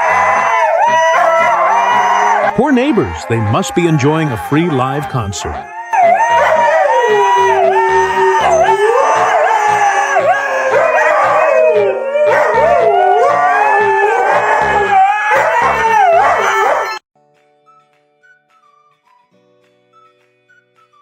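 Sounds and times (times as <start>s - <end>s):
dog howling: 0.0s - 4.8s, 5.4s - 17.0s.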